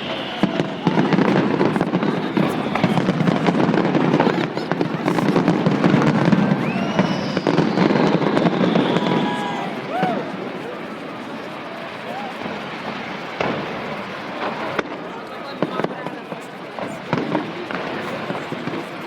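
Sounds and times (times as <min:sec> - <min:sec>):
fireworks bangs and crackles: 0:00.0 - 0:19.0
fireworks whistling: 0:00.0 - 0:19.0.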